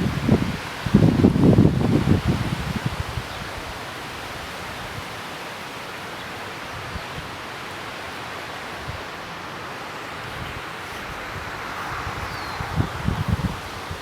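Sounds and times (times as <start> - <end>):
strong wind rushing: 0.0 - 3.8, 10.3 - 14.0
wind thumps on microphone: 11.0 - 14.0.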